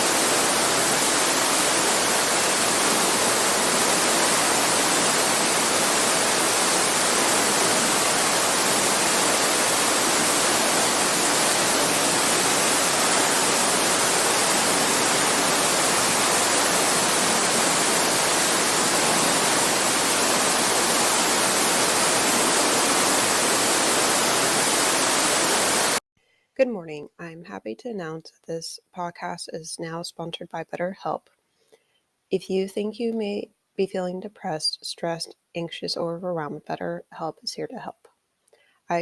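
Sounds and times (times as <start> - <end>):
creek water running: 0.0 - 26.0.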